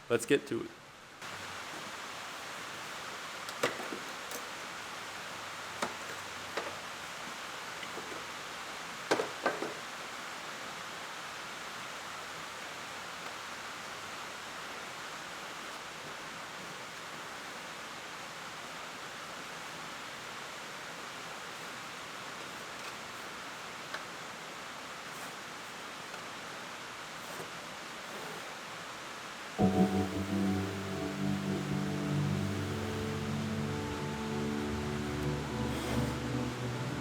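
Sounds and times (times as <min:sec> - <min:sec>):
steady background hiss: 0:00.0 - 0:37.0.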